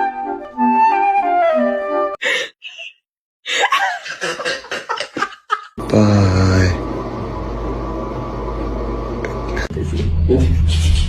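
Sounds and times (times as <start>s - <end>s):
flute melody over a beat: 0.0s - 2.2s.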